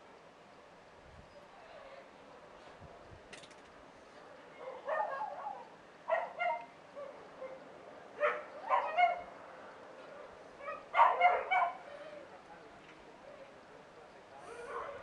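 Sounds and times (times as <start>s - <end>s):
dog barking: 4.6s - 7.6s, 8.2s - 9.3s, 10.6s - 11.9s, 14.7s - 15.0s.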